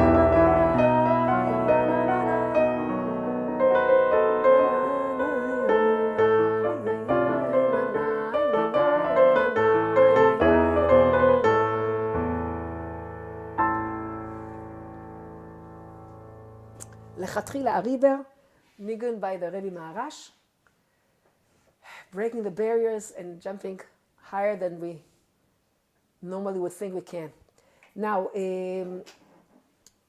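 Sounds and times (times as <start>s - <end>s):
keyboard melody with chords: 0.0s - 17.2s.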